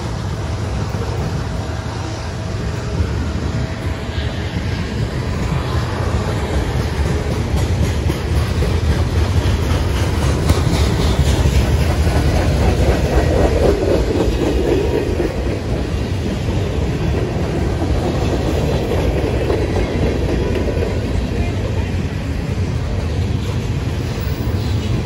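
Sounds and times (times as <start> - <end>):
freight train rumbling: 0.0 - 25.0
wheels clacking over rail joints: 5.4 - 25.0.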